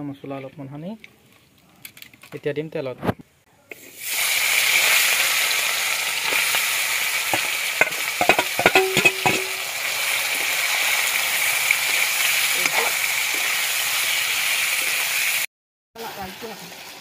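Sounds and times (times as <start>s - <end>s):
chicken sizzling in hot oil: 3.7s - 17.0s
knocks on steel bowl: 7.8s - 9.6s.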